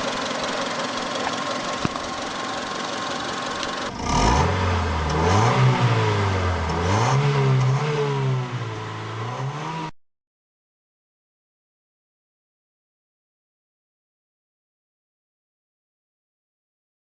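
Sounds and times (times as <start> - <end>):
car engine accelerating: 0.0 - 9.9.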